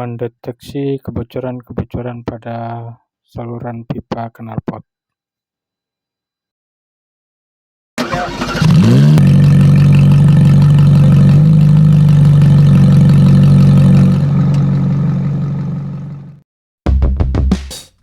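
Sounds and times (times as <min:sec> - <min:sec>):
car engine starting and idling: 0:08.0 - 0:16.4.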